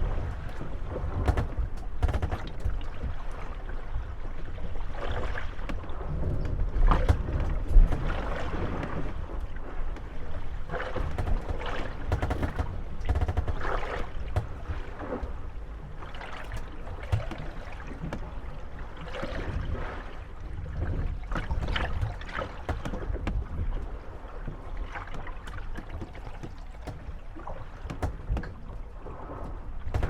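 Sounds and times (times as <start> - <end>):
water slapping: 0.0 - 4.2, 4.8 - 30.0
boat hulls creaking and knocking: 0.0 - 30.0.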